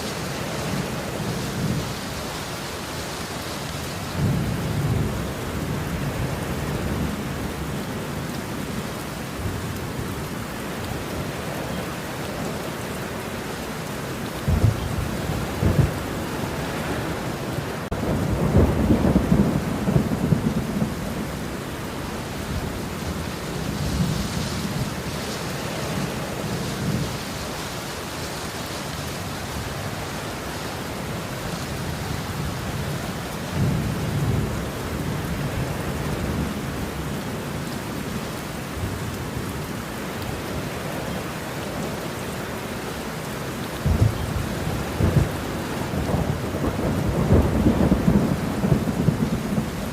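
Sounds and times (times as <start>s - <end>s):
rain falling: 0.0s - 49.9s
rolling thunder: 14.4s - 27.3s, 31.9s - 37.0s, 43.8s - 49.9s.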